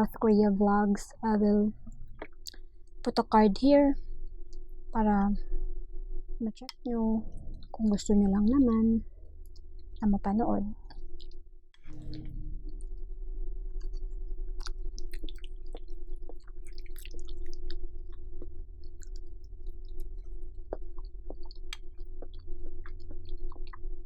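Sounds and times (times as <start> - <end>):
electrical hum: 0.0 - 24.0
chewing food: 13.8 - 24.0.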